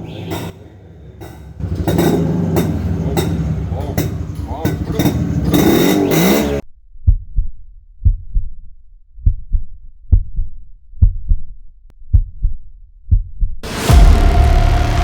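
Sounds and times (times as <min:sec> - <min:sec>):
heartbeat thumps: 0:07.0 - 0:08.6, 0:09.2 - 0:14.2.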